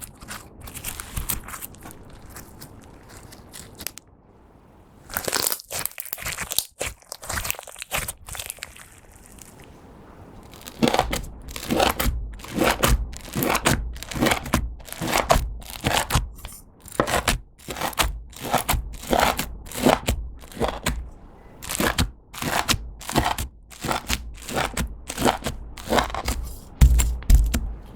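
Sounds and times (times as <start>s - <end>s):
slime squishing by hand: 5.1s - 9.6s, 10.5s - 27.9s.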